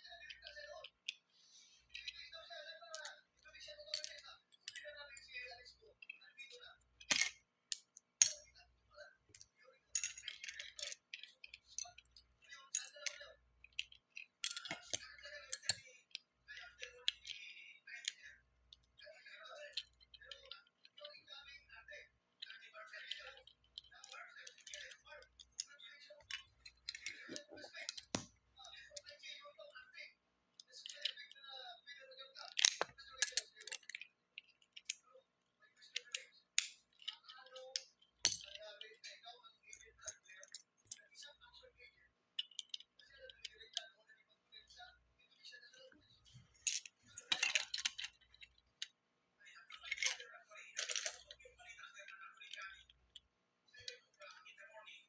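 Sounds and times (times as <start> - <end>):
plastic bricks clicking and snapping: 7.0 - 8.4, 9.3 - 16.2, 23.0 - 28.3, 32.4 - 35.0, 35.9 - 39.2, 46.6 - 48.6
plastic bricks clicking and rattling: 32.4 - 35.0, 46.6 - 48.6.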